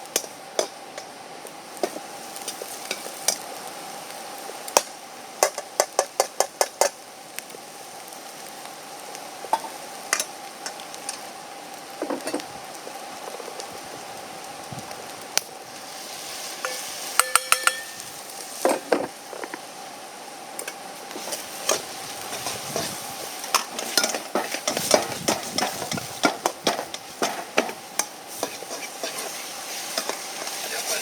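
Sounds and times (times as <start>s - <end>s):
food sizzling in a wok: 0.0s - 31.0s
utensil scraping and clanking on wok: 0.1s - 3.6s, 4.8s - 7.0s, 9.5s - 11.3s, 11.9s - 12.5s, 15.9s - 19.6s, 20.6s - 31.0s.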